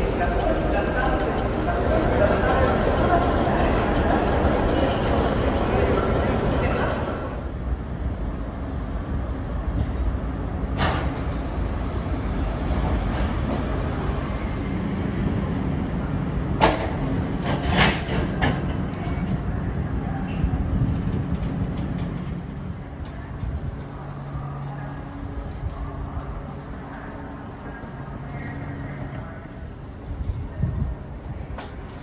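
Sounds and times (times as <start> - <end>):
train rumbling past: 0.0 - 32.0
sharp clicks and squeaks: 10.5 - 14.8.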